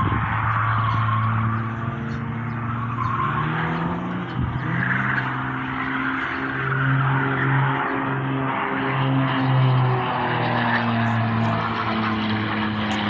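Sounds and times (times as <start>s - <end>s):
propeller aircraft engine: 5.2s - 13.0s.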